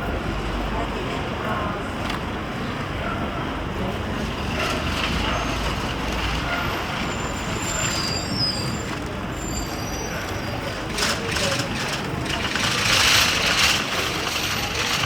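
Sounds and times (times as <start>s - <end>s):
heavy vehicle engine rumble: 0.0s - 15.0s
street traffic: 0.0s - 15.0s
short high squeaks: 7.1s - 10.7s.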